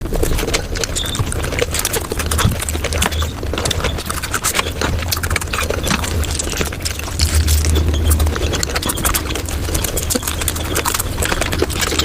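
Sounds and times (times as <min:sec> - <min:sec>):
rapid crunching and smacking: 0:00.0 - 0:12.0
low hum: 0:05.0 - 0:12.0.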